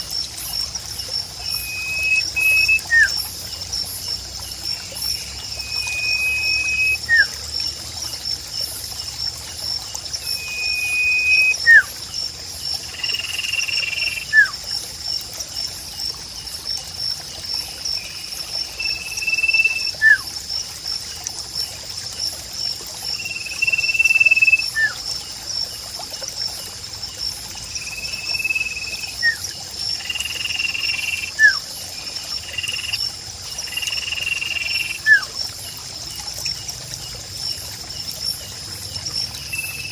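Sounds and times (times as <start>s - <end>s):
trickling stream: 0.0s - 39.9s
bird whistling song: 1.4s - 3.2s, 5.5s - 7.3s, 10.3s - 11.9s, 13.3s - 14.6s, 18.8s - 20.3s, 23.4s - 25.0s, 27.8s - 29.4s, 30.2s - 31.6s, 34.4s - 35.3s.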